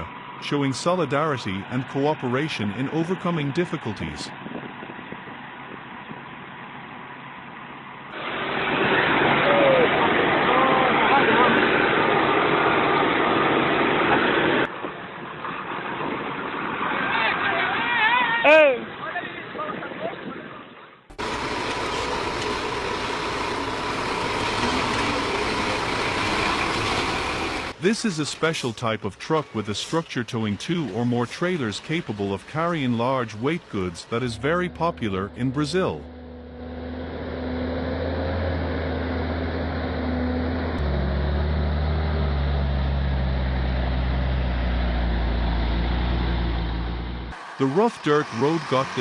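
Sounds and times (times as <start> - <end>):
rushing noise: 8.2 - 18.0, 31.9 - 49.0
heavy truck engine running: 21.1 - 27.8, 28.4 - 49.0.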